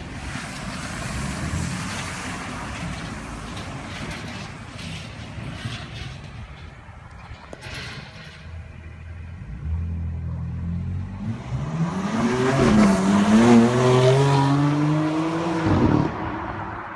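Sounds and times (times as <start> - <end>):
car engine accelerating hard: 9.5 - 16.4.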